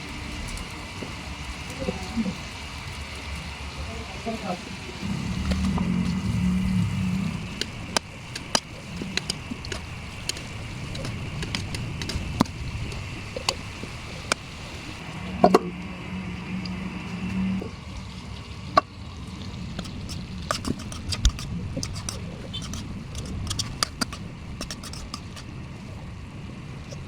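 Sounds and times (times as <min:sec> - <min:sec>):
sharp pops and clicks: 0:07.1 - 0:15.7, 0:19.7 - 0:25.7.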